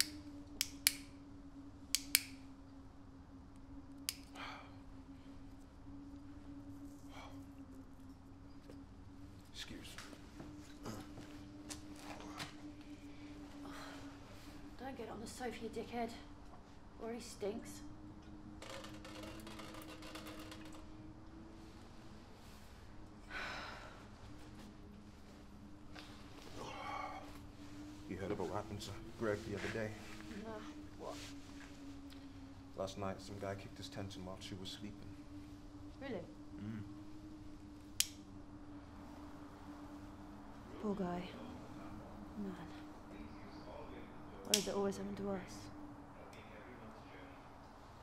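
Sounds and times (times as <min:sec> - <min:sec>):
cigarette lighter clicks: 0:00.0 - 0:01.1, 0:01.9 - 0:02.4, 0:38.0 - 0:38.2
steady low hum: 0:00.0 - 0:48.0
faint crackling rustles: 0:05.0 - 0:46.0
soft breath: 0:22.4 - 0:24.5.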